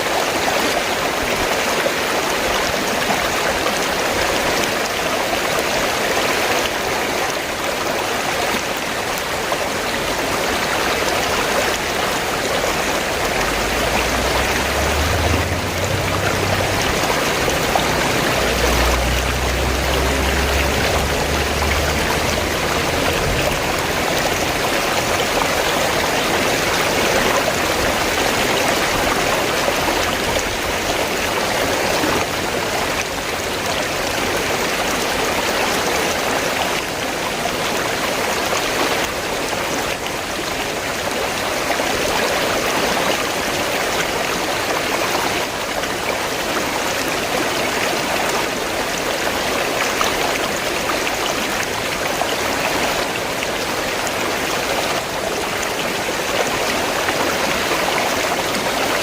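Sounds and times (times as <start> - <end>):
river water flowing: 0.0 - 59.0
low rumble: 13.2 - 25.7.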